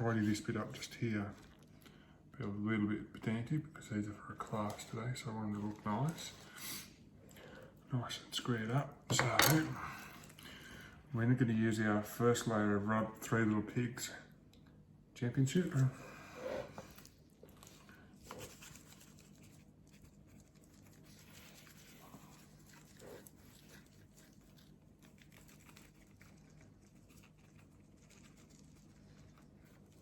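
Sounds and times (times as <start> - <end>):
dry rub pattering onto meat: 16.9 - 30.0.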